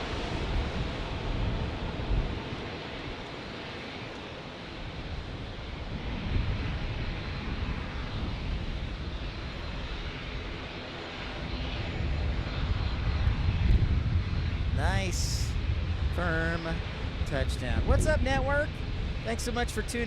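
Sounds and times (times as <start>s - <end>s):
jet engines rushing: 0.0s - 20.0s
low rumble: 11.4s - 20.0s.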